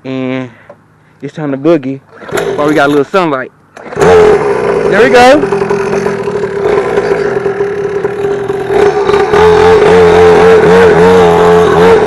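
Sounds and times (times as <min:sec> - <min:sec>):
dirt bike engine revving: 0:02.1 - 0:02.9, 0:03.8 - 0:12.0.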